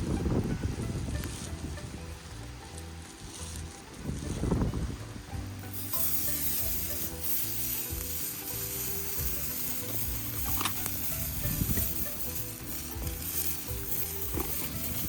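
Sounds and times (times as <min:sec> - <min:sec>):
wind buffeting microphone: 0:00.0 - 0:05.5, 0:10.4 - 0:12.1
wood fire crackling: 0:00.0 - 0:15.0.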